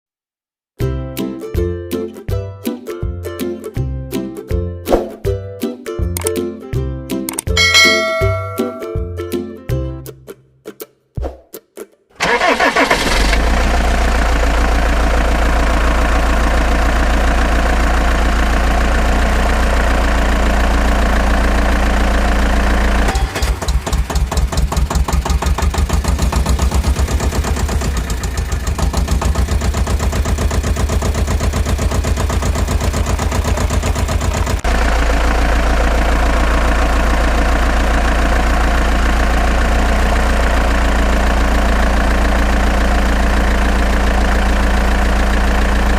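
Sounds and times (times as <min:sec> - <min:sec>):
vehicle engine idling: 0:12.2 - 0:45.9.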